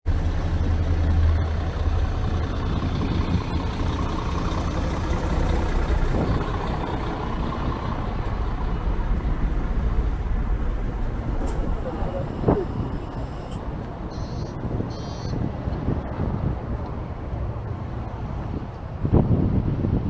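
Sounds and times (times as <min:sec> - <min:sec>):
strong wind buffeting microphone: 0:00.1 - 0:20.0.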